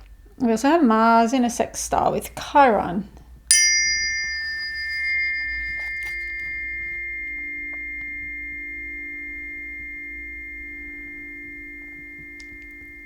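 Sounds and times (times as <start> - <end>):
tuning forks ringing: 3.5 - 13.0.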